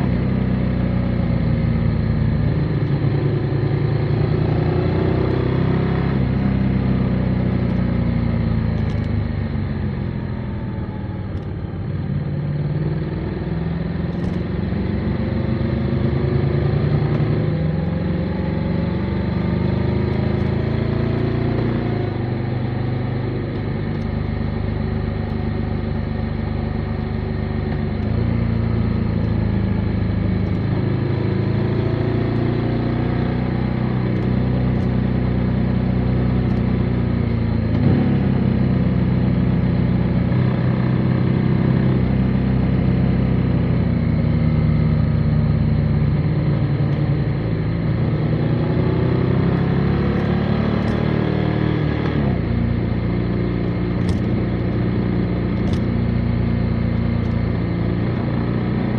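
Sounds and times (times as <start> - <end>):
motorcycle engine running: 0.0 - 58.9
wind and road noise: 0.0 - 58.9.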